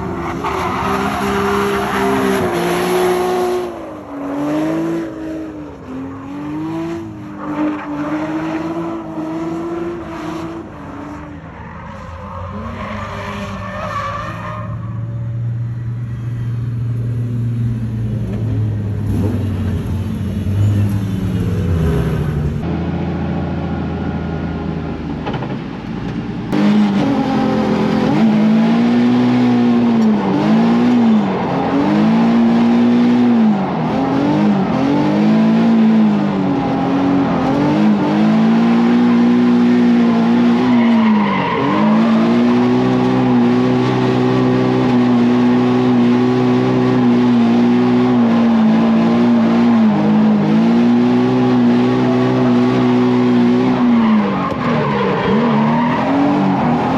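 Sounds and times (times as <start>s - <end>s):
car engine revving high: 26.5s - 56.9s.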